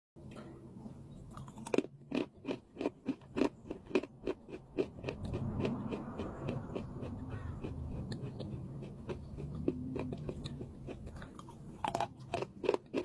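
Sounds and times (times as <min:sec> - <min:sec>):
chewing crunches: 0:01.3 - 0:13.0.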